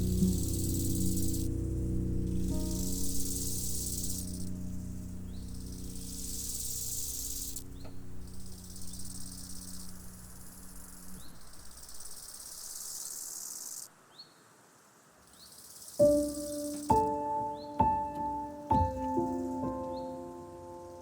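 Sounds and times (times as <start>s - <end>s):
piano notes: 0.0s - 9.4s, 16.0s - 21.0s
instrumental music low notes: 0.0s - 9.6s, 16.0s - 21.0s
insects trilling: 0.0s - 21.0s.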